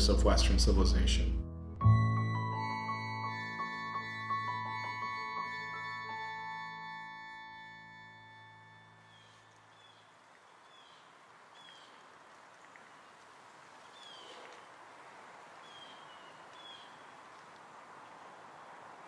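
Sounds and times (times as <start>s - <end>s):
small bird chirping: 15.6s - 17.2s.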